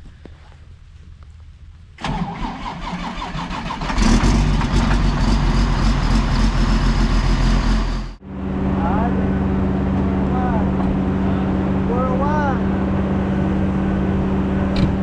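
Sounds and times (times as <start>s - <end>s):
engine starter cranking: 2.0s - 5.2s
engine running: 2.0s - 15.0s.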